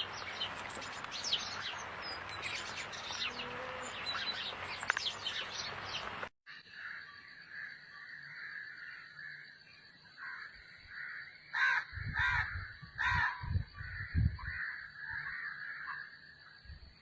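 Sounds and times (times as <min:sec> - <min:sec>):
crow cawing: 0:10.2 - 0:16.1.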